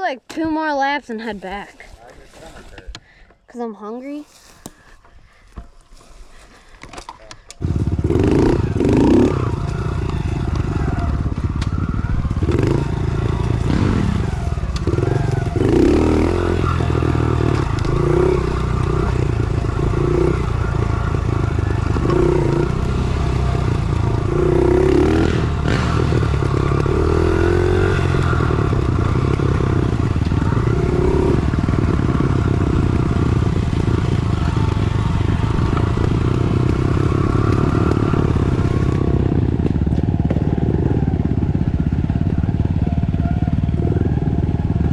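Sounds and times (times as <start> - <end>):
motorbike engine revving: 7.6 - 44.9.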